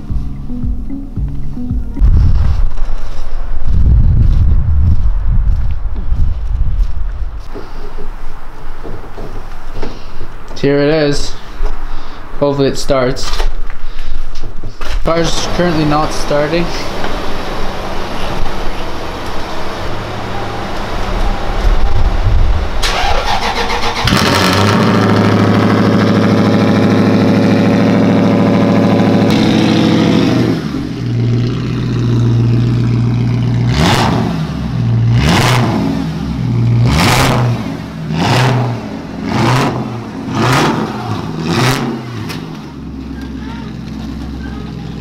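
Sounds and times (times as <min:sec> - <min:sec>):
car engine cranking and starting: 0:14.8 - 0:45.0
car engine idling: 0:15.1 - 0:35.2, 0:35.8 - 0:45.0
engine revving: 0:15.2 - 0:45.0.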